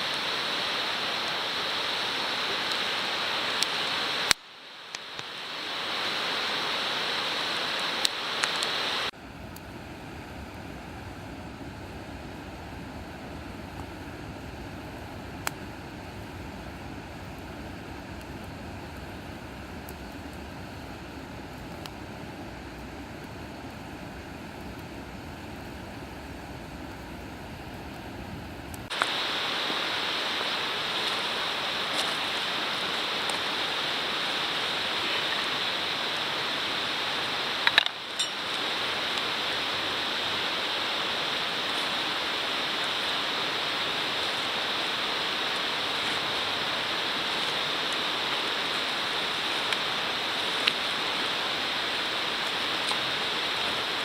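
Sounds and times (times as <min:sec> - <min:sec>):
steady rushing hiss: 0:00.0 - 0:54.0
faint clicks: 0:37.6 - 0:39.3.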